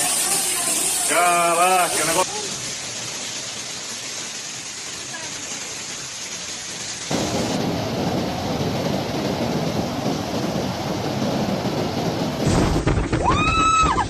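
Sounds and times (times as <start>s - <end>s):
heavy rain hissing: 0.0s - 14.0s
low rumble: 7.1s - 14.0s.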